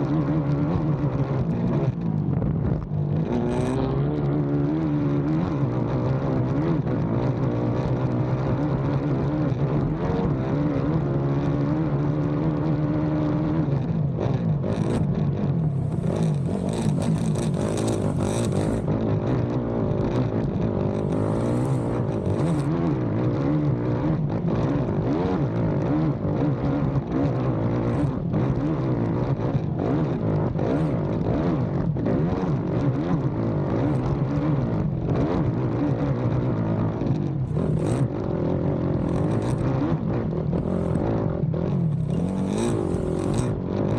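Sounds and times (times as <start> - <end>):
atv engine revving: 3.2 - 6.5, 12.3 - 26.4, 27.3 - 43.9.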